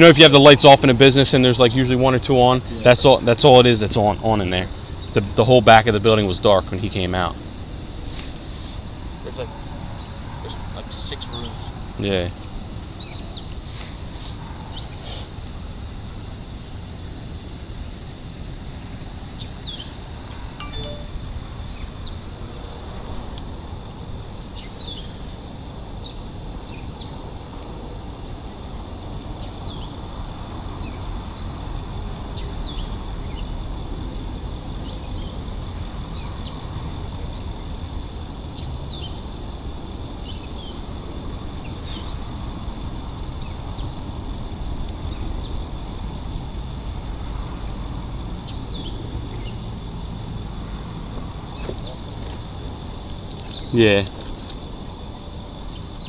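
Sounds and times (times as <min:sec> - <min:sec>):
bird chirps: 0:06.2 - 0:15.3, 0:16.0 - 0:22.9, 0:23.5 - 0:40.8, 0:41.6 - 0:42.6, 0:43.4 - 0:46.6, 0:47.2 - 0:50.9, 0:51.5 - 0:56.0
thin high tone: 0:20.6 - 0:21.4.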